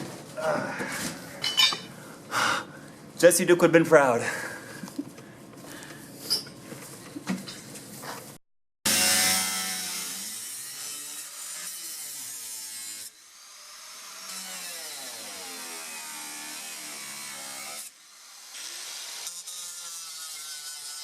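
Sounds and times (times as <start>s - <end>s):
power saw cutting fiberglass: 8.9s - 21.0s.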